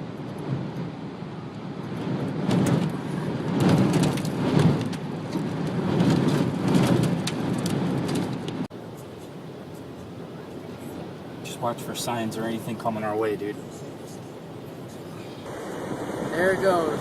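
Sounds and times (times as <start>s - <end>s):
gusty wind buffeting microphone: 0.0s - 11.6s, 13.6s - 17.0s
sharp crackles and rattles: 1.8s - 8.7s.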